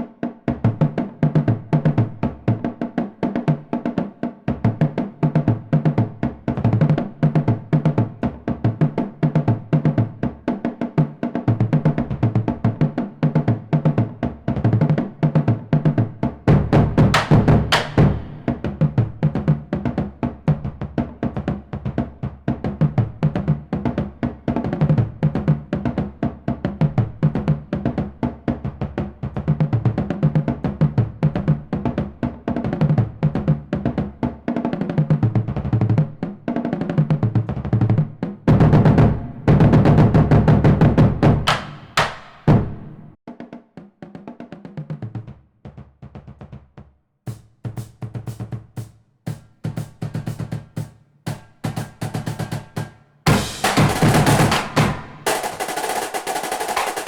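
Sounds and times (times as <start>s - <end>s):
drum-heavy music with bass: 16.5s - 18.8s, 38.5s - 43.2s, 47.3s - 57.0s.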